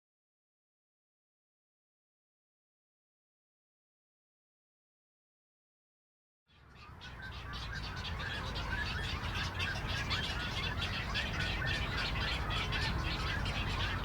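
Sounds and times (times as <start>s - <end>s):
birds squawking and chattering: 6.8s - 14.0s.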